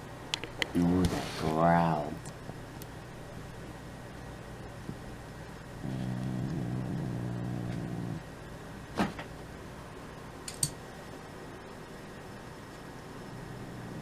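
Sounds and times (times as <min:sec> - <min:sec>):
cat growling: 0:05.8 - 0:08.3, 0:13.2 - 0:14.0
sharp click: 0:10.5 - 0:10.8.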